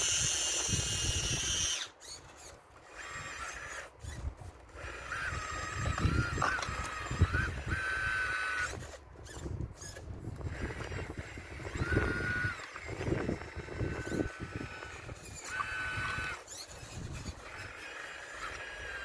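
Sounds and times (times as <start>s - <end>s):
model excavator motors whining: 0.0s - 19.0s
stones knocking and scraping: 5.6s - 7.2s.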